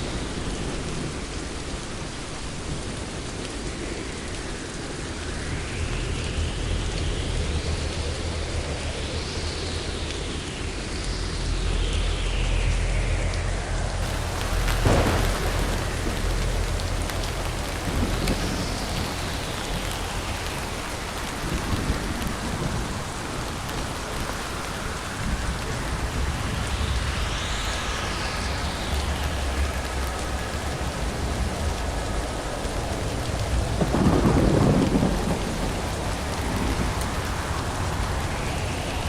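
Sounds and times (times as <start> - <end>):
heavy rain: 0.0 - 39.0
rolling thunder: 14.0 - 39.0.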